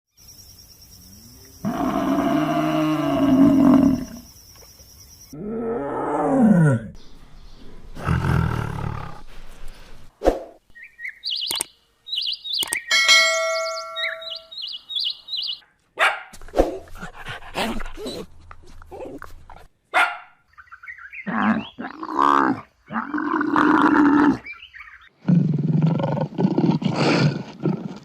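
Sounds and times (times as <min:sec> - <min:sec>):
high insect drone: 0:00.1 - 0:05.4
long low animal call: 0:01.4 - 0:04.3
rough low animal roar: 0:01.6 - 0:04.3, 0:05.4 - 0:07.0, 0:07.9 - 0:09.3, 0:21.2 - 0:24.5
quick high chirps: 0:11.3 - 0:15.6
sharp clicks: 0:11.4 - 0:11.7, 0:12.5 - 0:12.9.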